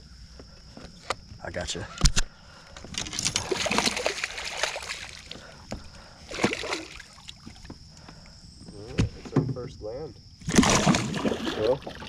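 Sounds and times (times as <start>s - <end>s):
fish thrashing and splashing: 2.9s - 5.6s, 6.3s - 7.7s, 10.4s - 12.0s.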